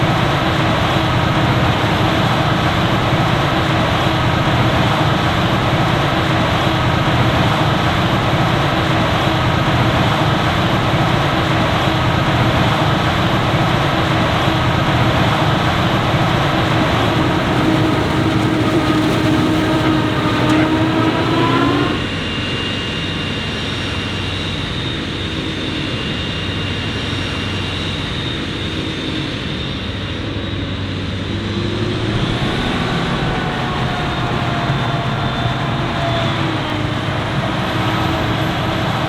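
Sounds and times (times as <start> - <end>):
diesel farm machinery engines: 0.0 - 22.2, 30.2 - 39.0
steady rumble: 16.1 - 22.1.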